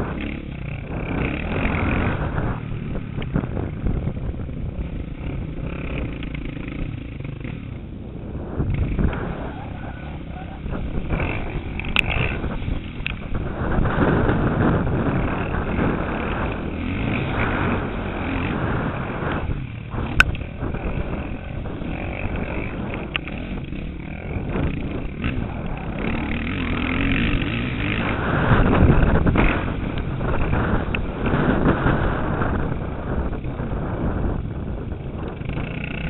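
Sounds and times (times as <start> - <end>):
motocross bike engine revving: 0.0 - 36.0.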